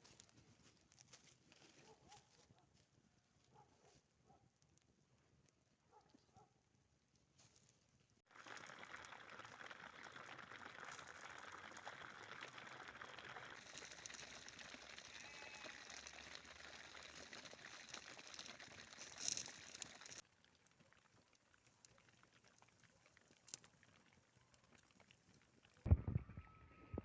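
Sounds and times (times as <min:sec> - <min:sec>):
rain pattering: 0:08.3 - 0:25.9.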